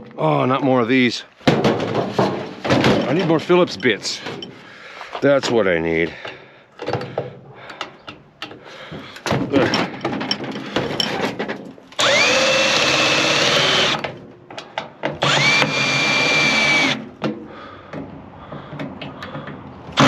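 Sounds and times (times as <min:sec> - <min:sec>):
parts and tool clattering: 0:01.4 - 0:12.1, 0:14.0 - 0:15.8
cordless drill motor whining: 0:12.0 - 0:14.1, 0:15.2 - 0:17.1.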